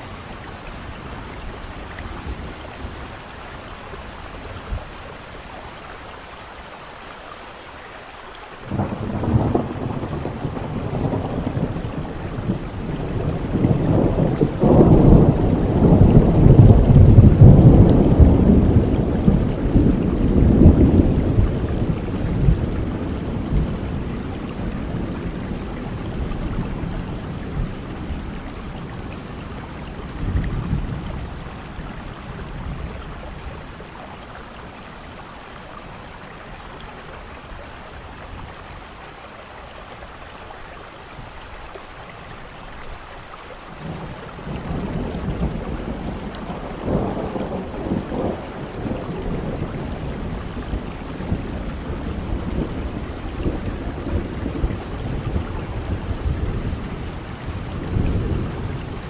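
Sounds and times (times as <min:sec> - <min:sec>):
rain hissing: 0:00.0 - 0:59.0
rolling thunder: 0:08.7 - 0:34.8, 0:43.8 - 0:59.0.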